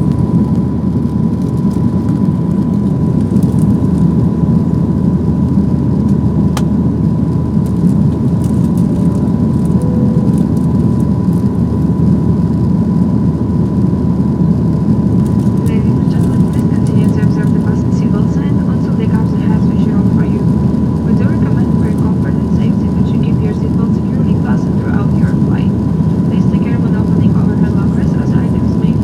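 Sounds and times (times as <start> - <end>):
thin steady whine: 8.1 - 13.5, 14.6 - 29.0.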